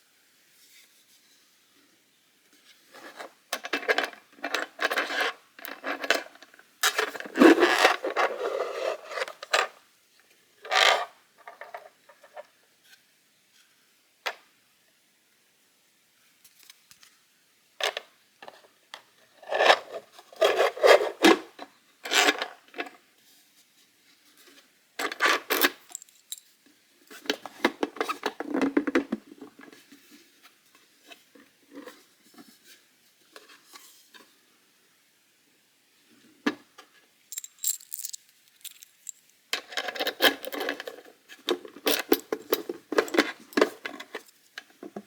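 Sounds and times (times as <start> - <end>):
plastic parts scraping: 37.3 - 44.3.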